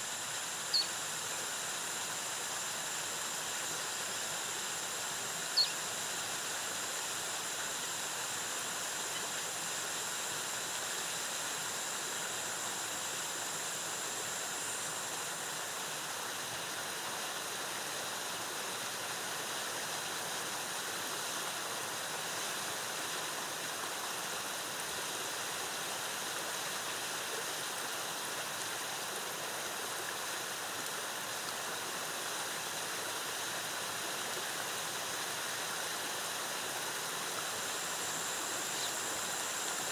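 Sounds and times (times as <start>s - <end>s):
faint high steady tone: 5.5s - 5.9s, 37.6s - 39.9s.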